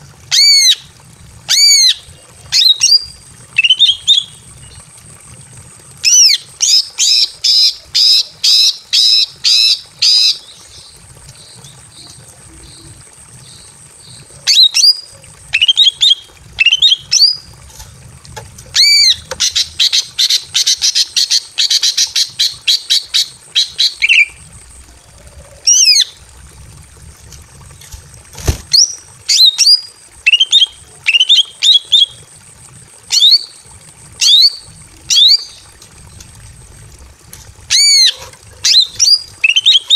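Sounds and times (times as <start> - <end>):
bird calling with sharp notes: 6.0 - 17.5.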